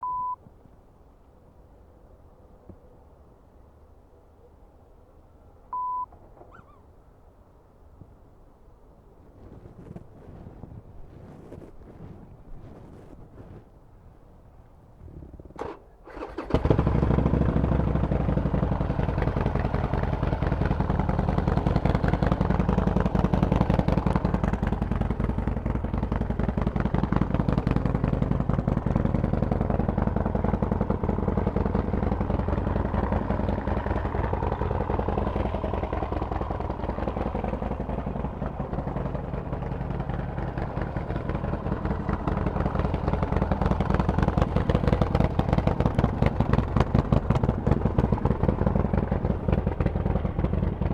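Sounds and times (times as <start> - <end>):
motorcycle engine running: 15.2 - 50.9.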